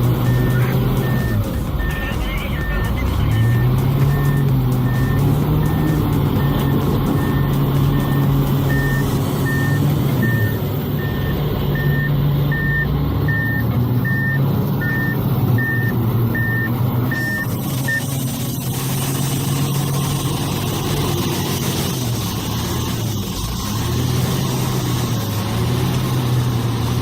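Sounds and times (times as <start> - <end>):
heavy machine engine running: 0.0 - 27.0
reversing alarm beeping: 0.1 - 18.2.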